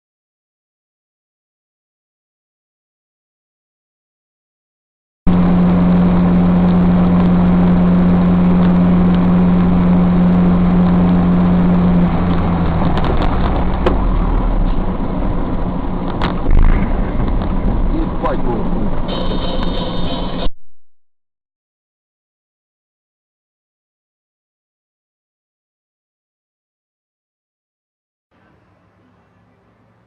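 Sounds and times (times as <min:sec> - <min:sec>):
vehicle engine and road noise: 0:05.3 - 0:20.5, 0:28.3 - 0:30.0.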